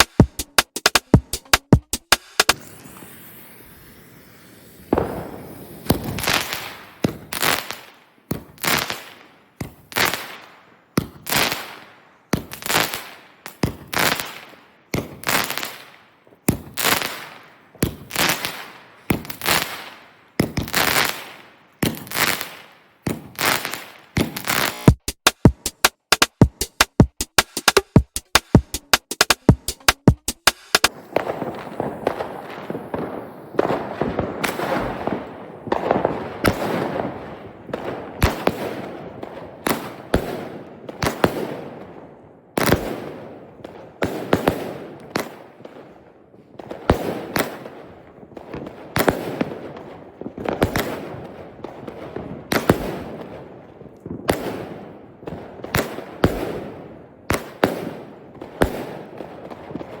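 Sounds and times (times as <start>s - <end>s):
firework bangs: 0.0s - 10.3s, 16.5s - 25.0s, 30.4s - 42.0s, 54.1s - 60.0s
firework crackling: 0.0s - 10.3s, 16.6s - 26.3s, 27.4s - 41.8s.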